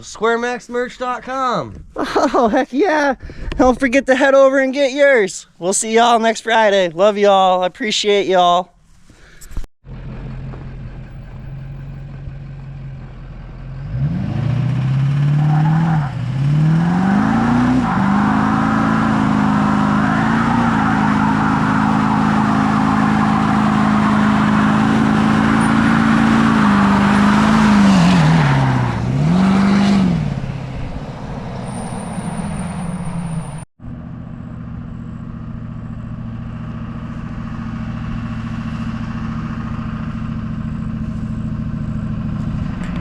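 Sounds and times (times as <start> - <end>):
vehicle engine running: 9.9 - 15.3, 18.4 - 43.0.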